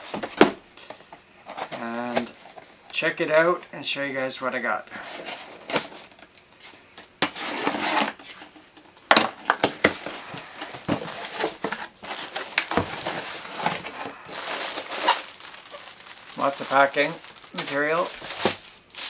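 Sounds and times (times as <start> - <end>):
packing material crinkling: 9.8 - 19.0.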